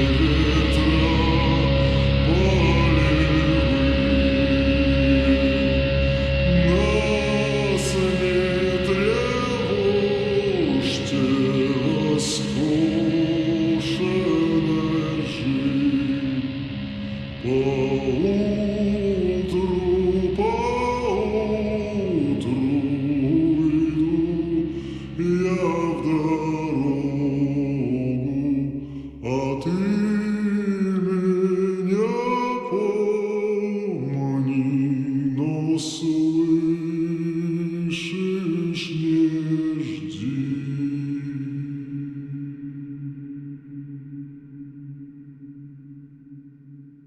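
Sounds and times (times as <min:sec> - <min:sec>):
slowed reverberant voices singing: 0:00.0 - 0:46.6
low drone: 0:00.0 - 0:47.0.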